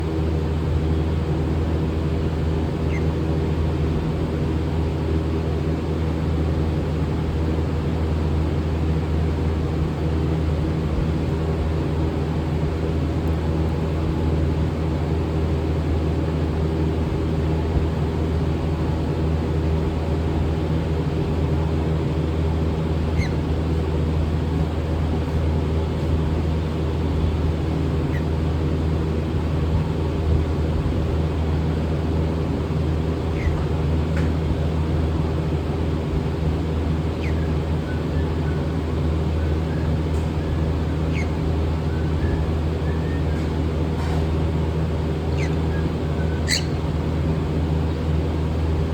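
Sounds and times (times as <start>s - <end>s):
low mechanical hum: 0.0s - 48.9s
faint chirps: 37.1s - 38.7s.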